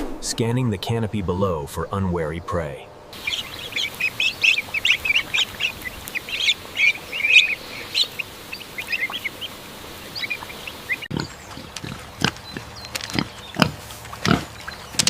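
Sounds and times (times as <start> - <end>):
ducklings peeping: 3.1 - 15.0.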